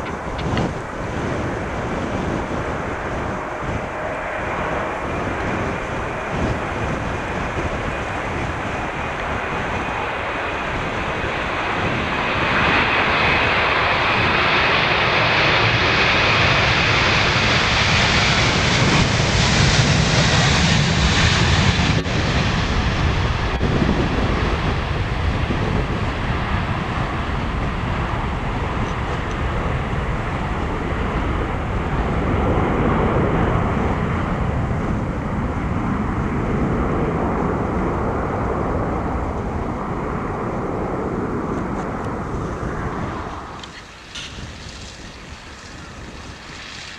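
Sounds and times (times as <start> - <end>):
jet engine roar: 0.0 - 46.9.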